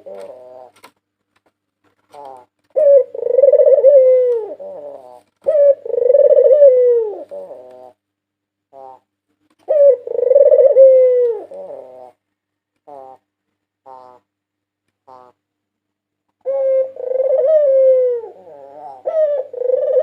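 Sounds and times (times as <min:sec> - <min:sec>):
dove cooing: 0:00.0 - 0:00.9, 0:02.1 - 0:08.0, 0:08.7 - 0:12.2, 0:12.8 - 0:14.3, 0:15.0 - 0:15.4, 0:16.4 - 0:20.0.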